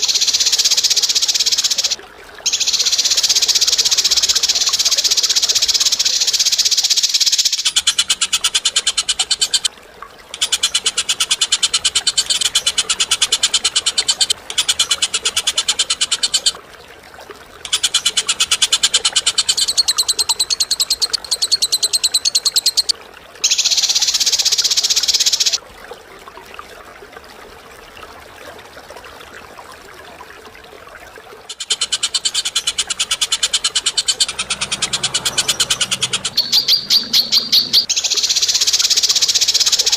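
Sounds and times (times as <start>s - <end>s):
bird calls with buzzy trills: 0.0s - 9.7s, 17.6s - 25.6s, 31.5s - 39.9s.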